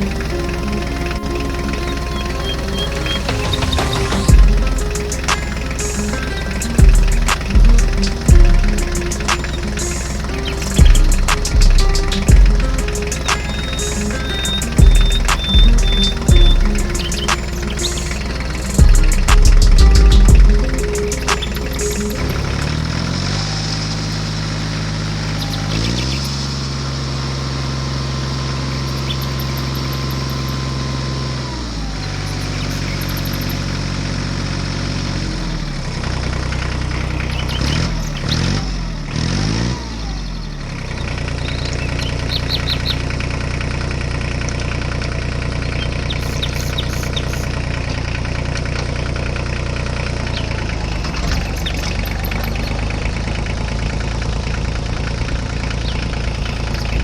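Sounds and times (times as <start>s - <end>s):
bird chirps: 0.0s - 26.6s, 28.6s - 30.8s, 32.0s - 33.8s, 40.2s - 43.2s, 45.7s - 47.8s
engine running: 0.0s - 57.0s.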